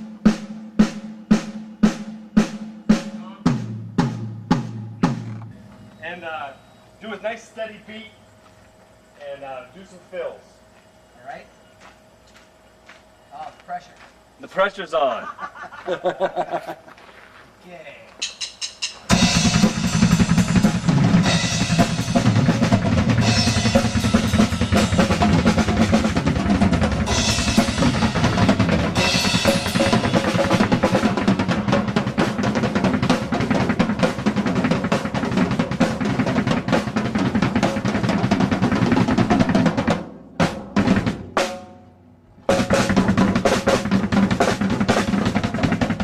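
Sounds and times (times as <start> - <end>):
drum kit rock beat: 0.0 - 6.1, 18.2 - 46.0
cymbal crashes: 18.2 - 34.1.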